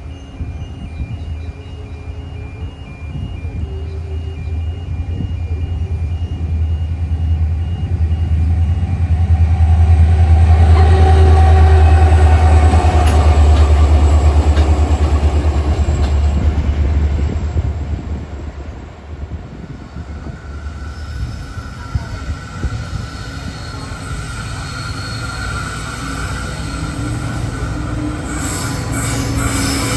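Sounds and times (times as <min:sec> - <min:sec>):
train passing rumble: 0:00.0 - 0:29.9.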